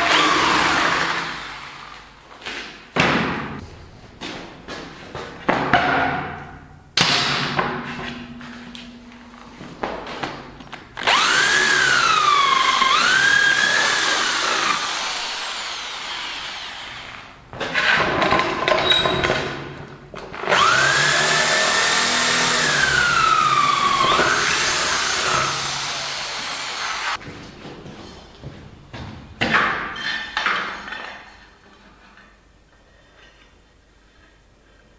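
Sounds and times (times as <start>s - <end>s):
power tool whining on metal: 0.0s - 1.9s, 11.0s - 17.5s, 20.5s - 27.2s.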